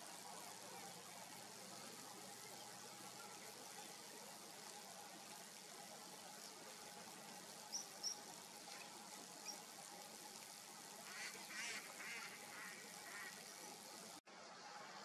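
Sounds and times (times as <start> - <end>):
outdoor background hiss: 0.0 - 15.0
birds chirping: 7.6 - 9.8, 11.0 - 14.1.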